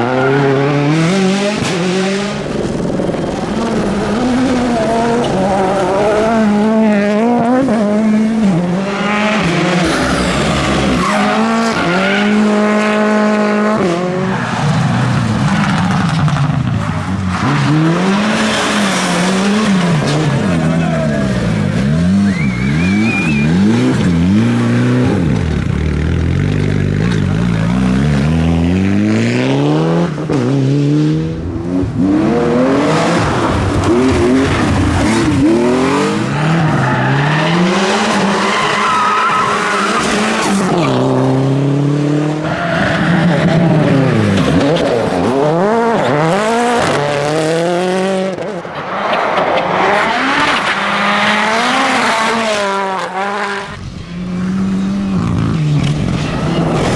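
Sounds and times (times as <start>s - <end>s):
tyres skidding: 0.0s - 30.3s, 31.4s - 56.9s
rally car engines revving: 0.0s - 56.9s.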